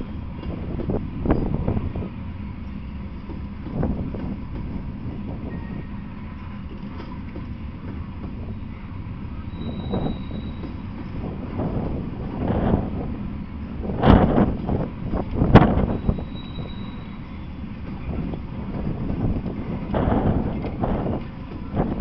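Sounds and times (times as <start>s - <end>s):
train wheels rumbling on rail: 0.0s - 22.0s
high wheel squeal: 5.4s - 6.7s, 8.6s - 11.2s, 15.1s - 18.5s.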